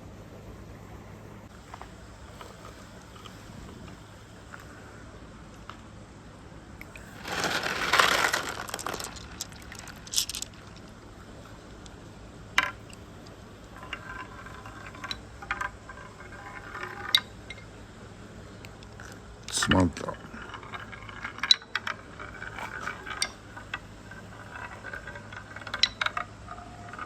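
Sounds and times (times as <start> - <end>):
marbles clicking on a track: 6.9 - 12.0, 12.6 - 17.7, 18.7 - 27.0
marbles rolling down a track: 7.0 - 12.0, 13.6 - 17.6, 18.8 - 27.0.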